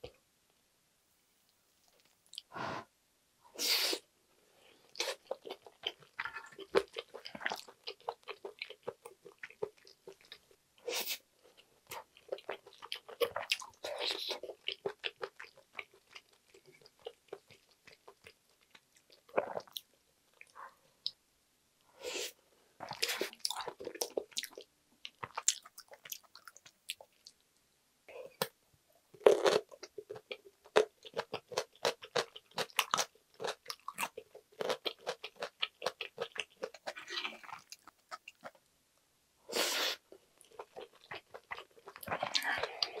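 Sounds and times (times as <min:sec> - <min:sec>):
chewing: 0:04.9 - 0:10.5, 0:29.2 - 0:38.6, 0:40.4 - 0:43.0.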